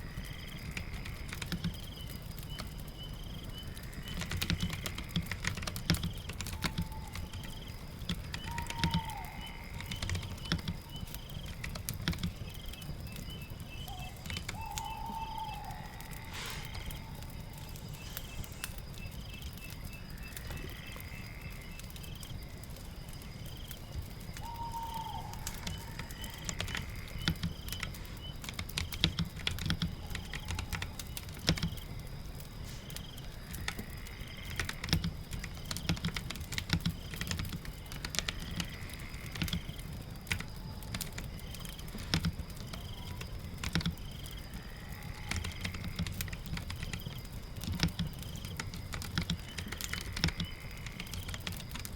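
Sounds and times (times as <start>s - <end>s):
steady rain-like hiss: 0.0s - 51.9s
computer keyboard typing: 4.0s - 12.7s, 14.0s - 15.6s, 24.8s - 31.8s, 34.5s - 44.2s, 45.2s - 51.9s.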